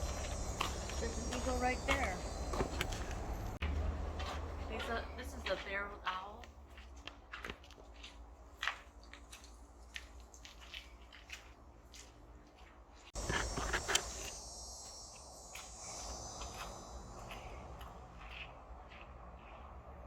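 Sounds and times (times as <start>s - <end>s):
high-pitched insect drone: 0.0s - 3.6s, 13.2s - 18.1s.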